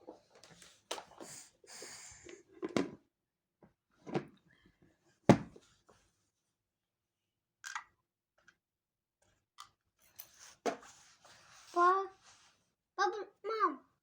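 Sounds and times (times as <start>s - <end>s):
knocks and clicks of objects handled: 5.3s - 5.6s.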